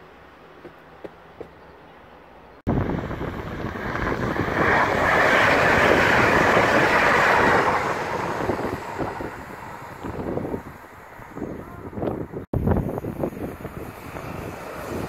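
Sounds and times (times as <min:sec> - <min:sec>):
electric train passing: 0:00.0 - 0:15.0
wind on microphone: 0:02.7 - 0:15.0.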